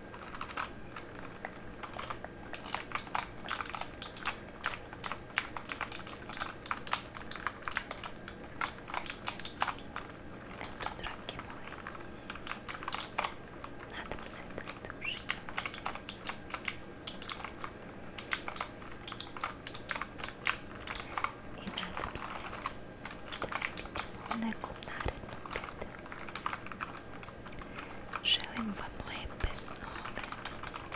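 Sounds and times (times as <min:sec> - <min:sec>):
mechanical keyboard typing: 0:00.1 - 0:30.9.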